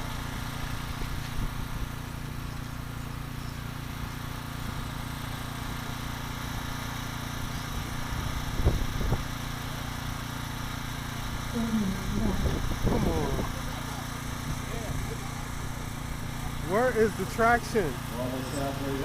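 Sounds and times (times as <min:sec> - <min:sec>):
low hum: 0:11.5 - 0:13.8.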